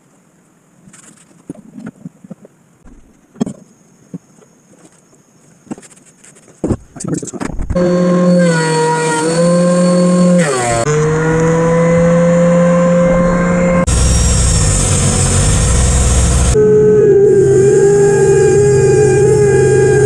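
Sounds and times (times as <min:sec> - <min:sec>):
harsh cutting or sanding noise: 0:07.8 - 0:13.0
power tool higher whine: 0:07.8 - 0:20.0
power tool motor whine: 0:07.8 - 0:20.0.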